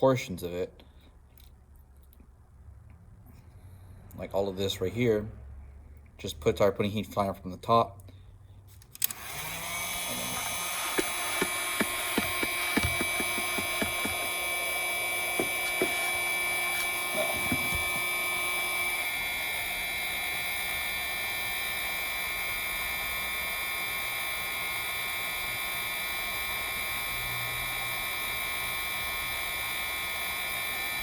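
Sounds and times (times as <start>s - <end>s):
heat gun motor hum: 9.0s - 31.0s
small clicks and taps: 10.4s - 14.4s.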